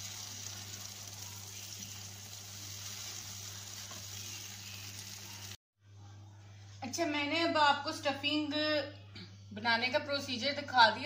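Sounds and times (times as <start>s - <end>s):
food sizzling in a frying pan: 0.0s - 5.6s.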